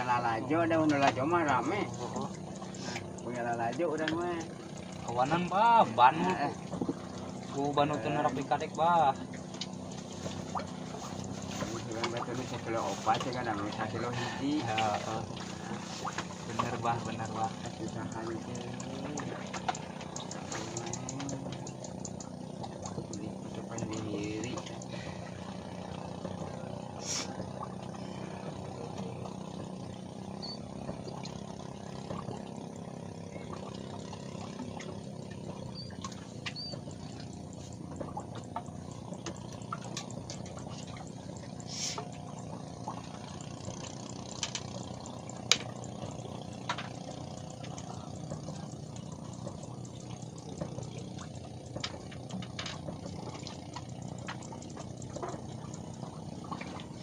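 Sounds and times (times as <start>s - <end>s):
steady low hum: 0.0s - 57.0s
water lapping and trickling: 0.0s - 57.0s
small clicks and knocks: 14.7s - 24.9s, 34.5s - 41.6s, 42.2s - 57.0s.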